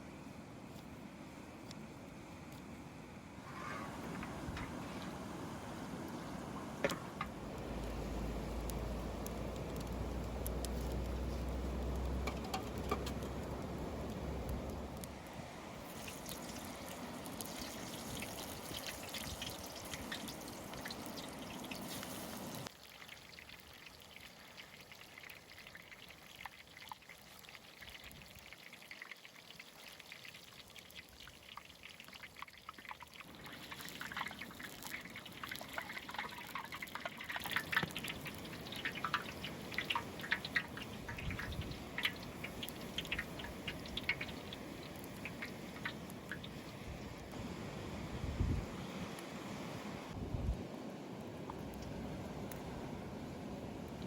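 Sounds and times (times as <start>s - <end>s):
light crackling ticks: 7.2s - 15.2s, 33.7s - 46.8s, 51.5s - 52.7s
liquid pouring: 15.9s - 47.2s.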